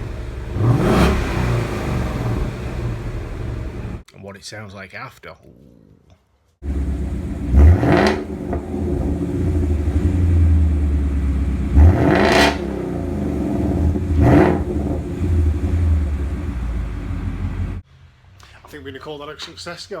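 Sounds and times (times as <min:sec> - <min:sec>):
car engine idling and revving: 0:00.0 - 0:04.0, 0:06.6 - 0:17.8.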